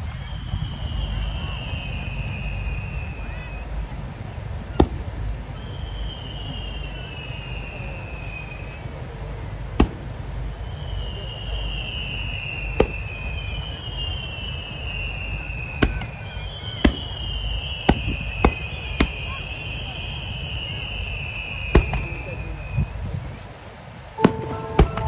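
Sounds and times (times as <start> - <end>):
fireworks bursting bangs: 3.7 - 6.6, 9.7 - 10.6, 12.3 - 14.0, 14.9 - 20.8, 21.5 - 22.6, 24.2 - 25.0
descending whistling tones: 24.2 - 25.0.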